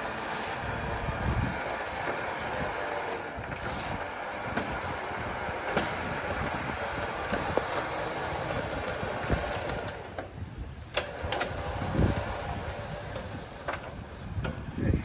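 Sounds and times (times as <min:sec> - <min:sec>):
vehicle rumbling and rattling: 0:00.0 - 0:15.0
sharp clicks and knocks: 0:05.6 - 0:10.3.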